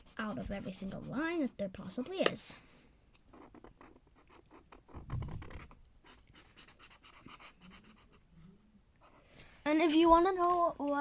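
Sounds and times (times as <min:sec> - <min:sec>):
marker scratching on paper: 0:00.0 - 0:02.1, 0:03.3 - 0:08.2.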